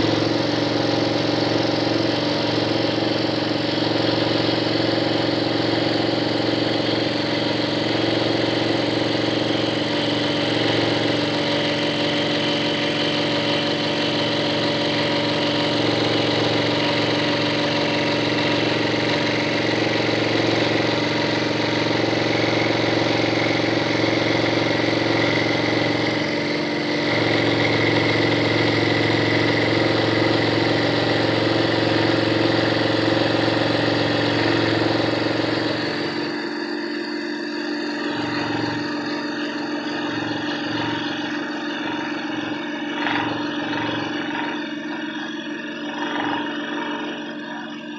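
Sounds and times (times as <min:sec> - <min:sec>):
scroll saw cutting: 0:00.0 - 0:47.9.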